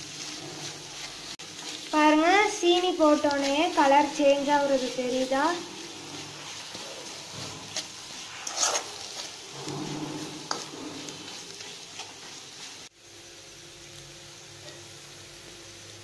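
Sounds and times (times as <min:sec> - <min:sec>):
onions frying in oil: 0:00.0 - 0:16.0
spoon scraping metal pan: 0:02.4 - 0:12.8.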